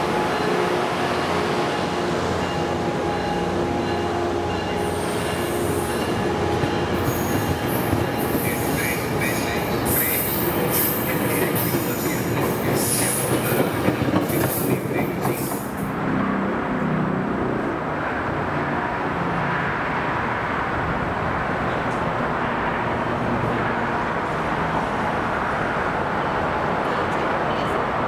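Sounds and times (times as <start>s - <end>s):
train rumble: 0.0s - 19.0s
train wheels clattering and squealing: 4.6s - 15.9s.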